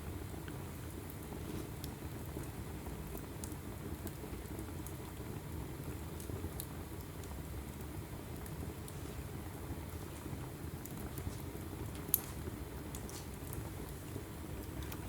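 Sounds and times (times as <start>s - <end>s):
burning logs crackling and popping: 0.0s - 15.0s
low rush of flame: 6.0s - 15.0s.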